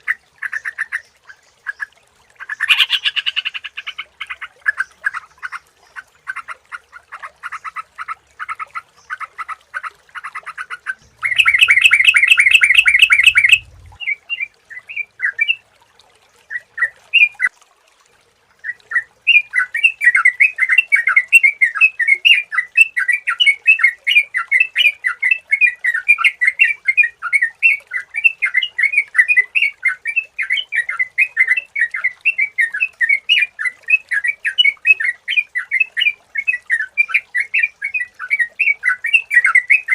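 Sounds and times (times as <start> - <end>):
bird chattering calls: 2.5 - 4.0, 10.6 - 14.0
low rumble: 13.5 - 14.0.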